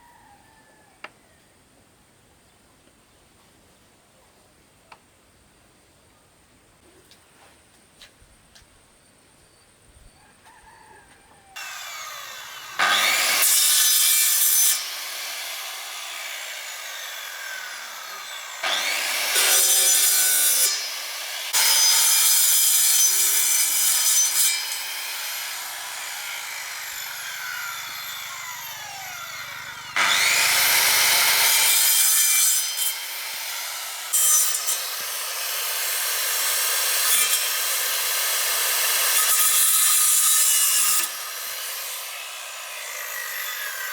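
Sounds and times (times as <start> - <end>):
electric power tool cutting wood: 11.6 - 43.9.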